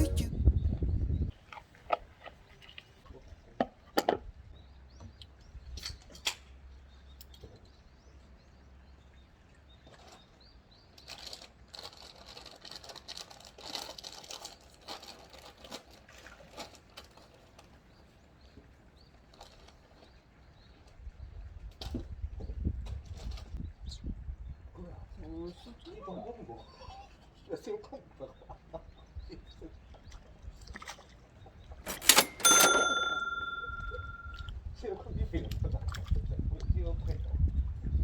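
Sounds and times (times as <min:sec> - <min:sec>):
sharp clicks: 0:31.9 - 0:34.5.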